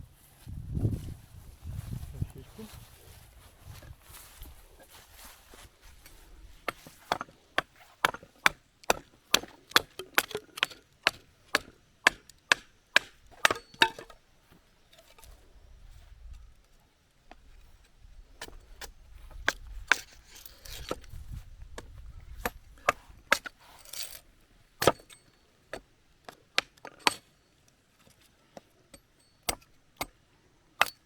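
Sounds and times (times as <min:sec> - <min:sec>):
axe chopping wood: 0:06.7 - 0:14.2, 0:21.7 - 0:23.6, 0:24.8 - 0:27.3, 0:28.9 - 0:30.2, 0:30.8 - 0:31.0.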